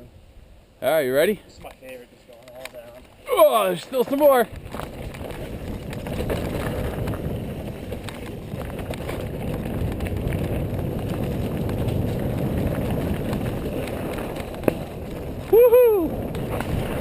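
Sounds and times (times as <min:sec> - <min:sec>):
bike rattling over bumps: 0:02.4 - 0:17.0
bike tyres rumbling on dirt: 0:02.8 - 0:17.0.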